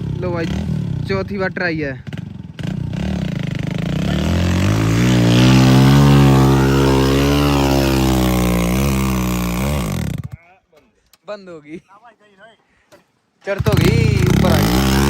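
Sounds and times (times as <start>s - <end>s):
vehicle engine revving hard: 2.6s - 10.3s, 13.7s - 15.0s.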